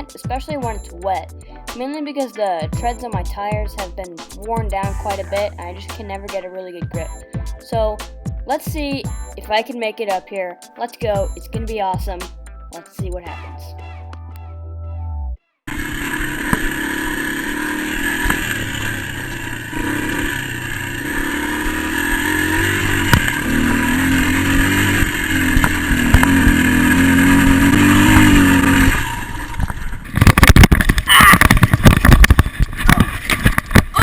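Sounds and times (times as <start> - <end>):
motorcycle engine revving hard: 15.7 - 32.4.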